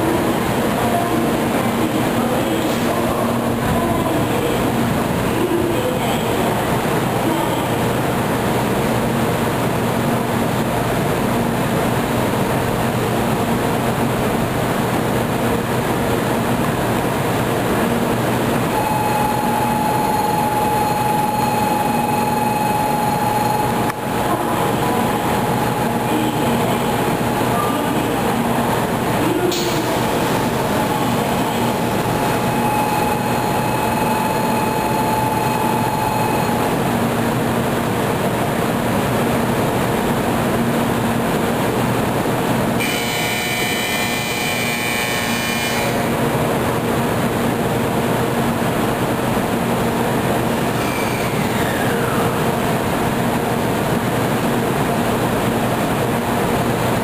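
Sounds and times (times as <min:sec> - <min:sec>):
train equipment humming with tones: 0:00.0 - 0:57.0.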